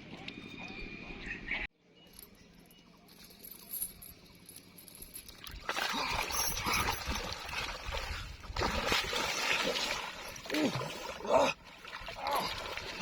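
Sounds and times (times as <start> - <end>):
water splashing and sloshing: 4.9 - 13.0.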